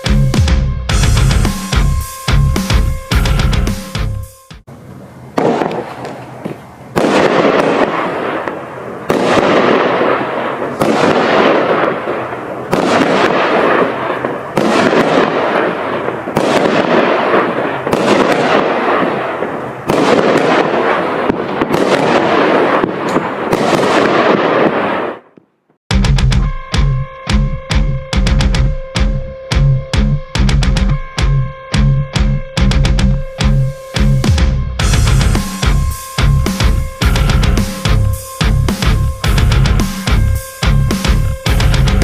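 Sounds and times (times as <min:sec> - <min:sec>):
firework shots with crackling breaks: 0:05.3 - 0:25.4.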